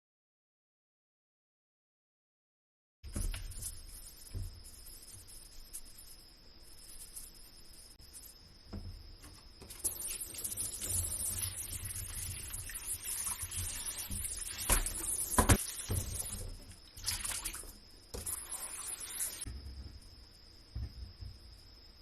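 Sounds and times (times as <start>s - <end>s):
water running from a tap: 9.7s - 19.5s.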